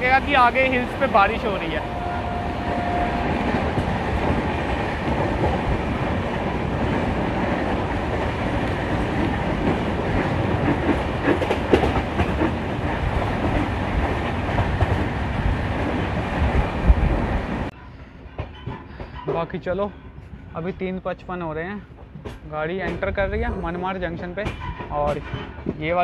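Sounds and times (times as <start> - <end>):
train rumble inside coach: 0.0 - 19.6, 20.4 - 26.0
wheels clicking over rail joints: 3.2 - 15.2.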